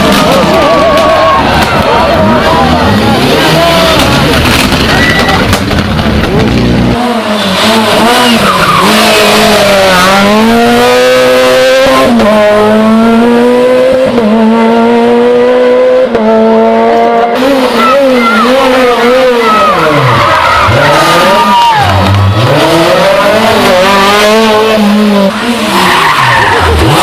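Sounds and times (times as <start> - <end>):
rally car engine revving: 0.0 - 27.0
tyre squeal: 4.9 - 5.5.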